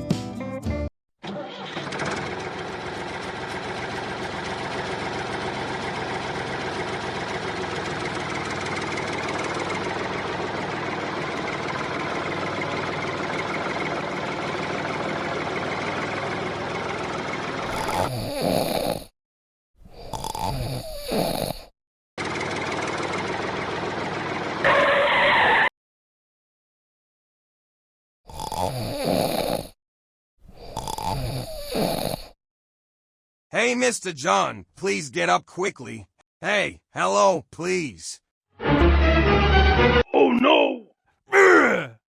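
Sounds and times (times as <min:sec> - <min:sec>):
tractor engine running: 0:01.6 - 0:17.7, 0:22.2 - 0:24.6.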